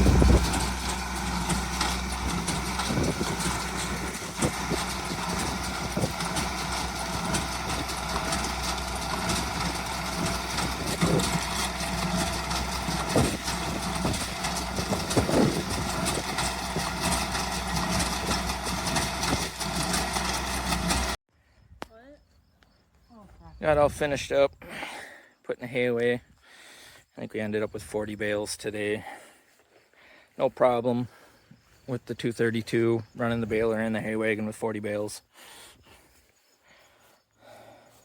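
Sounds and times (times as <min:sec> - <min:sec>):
tractor engine running: 0:00.0 - 0:21.2.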